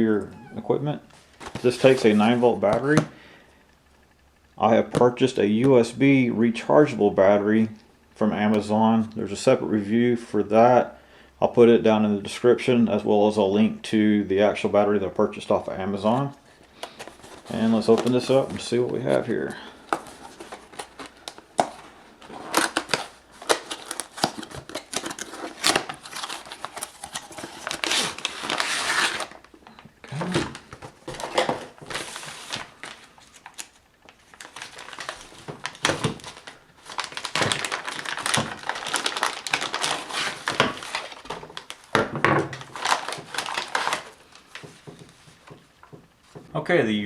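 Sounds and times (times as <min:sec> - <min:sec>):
plastic and cardboard crinkling: 0:00.0 - 0:03.1, 0:15.4 - 0:46.6.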